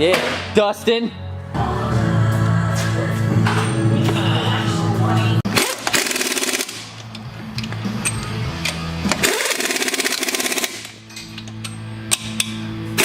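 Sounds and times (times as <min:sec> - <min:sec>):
music playing: 0:00.0 - 0:13.0
power tool rattling: 0:05.6 - 0:07.0, 0:08.6 - 0:11.6.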